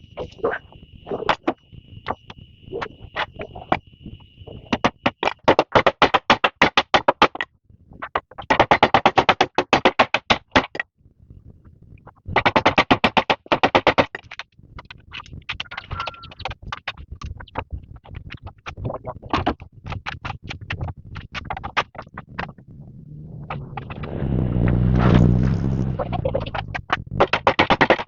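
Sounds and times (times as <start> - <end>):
frogs calling in pulses: 0.0 - 5.4, 15.5 - 16.6
insect high trill: 15.7 - 16.4.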